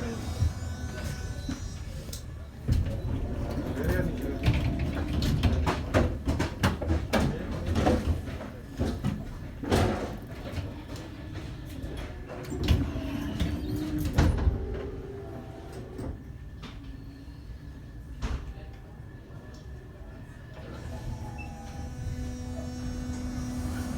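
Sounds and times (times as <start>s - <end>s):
tram rumbling: 0.0s - 23.9s
tram wheels clicking and knocking: 2.7s - 11.4s.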